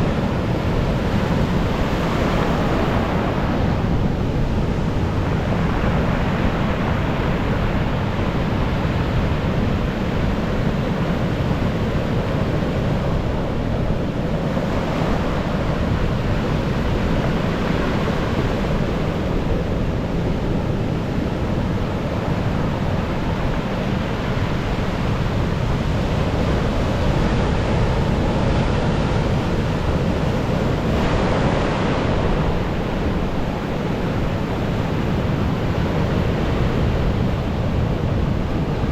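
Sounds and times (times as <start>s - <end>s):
waves breaking on shore: 0.0s - 38.9s
wind buffeting microphone: 0.0s - 38.9s.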